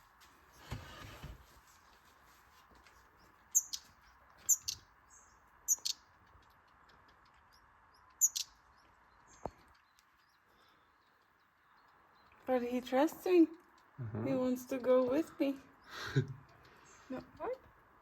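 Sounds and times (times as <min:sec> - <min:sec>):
small songbird chirping: 0:03.1 - 0:17.9.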